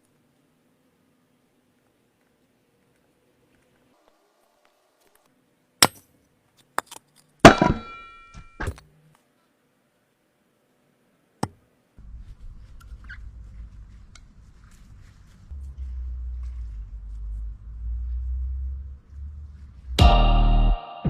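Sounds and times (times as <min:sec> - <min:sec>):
low rumble: 0:12.0 - 0:20.8.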